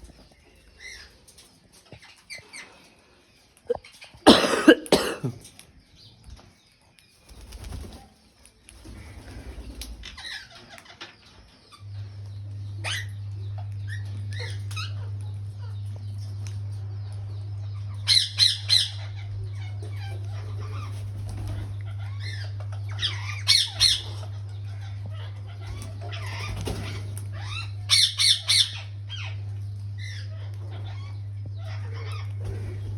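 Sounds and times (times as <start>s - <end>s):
steady low hum: 0.0s - 6.4s, 8.7s - 32.9s
parakeets squawking: 10.0s - 11.8s, 12.8s - 15.8s, 17.7s - 32.9s.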